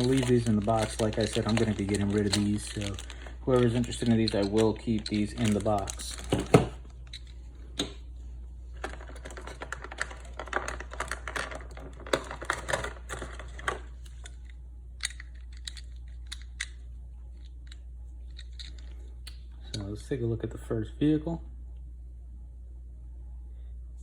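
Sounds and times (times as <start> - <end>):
plastic toy parts clicking and rattling: 0.0 - 7.4, 8.8 - 14.4, 15.0 - 19.0
steady low hum: 0.0 - 24.0.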